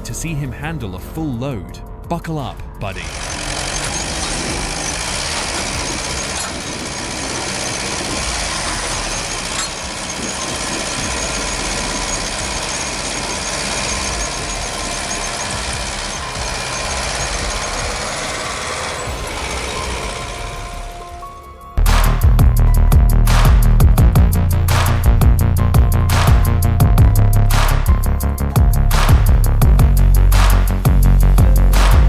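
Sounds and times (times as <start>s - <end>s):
heavy vehicle engine running: 2.9s - 21.2s.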